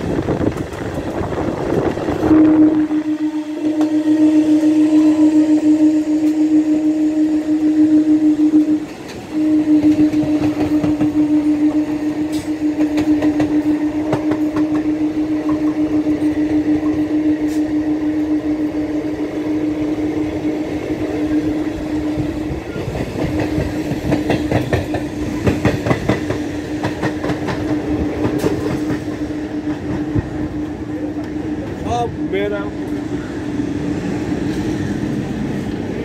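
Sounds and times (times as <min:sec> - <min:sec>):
train hum: 0:00.0 - 0:36.0
wheels clacking over rail joints: 0:22.6 - 0:31.9.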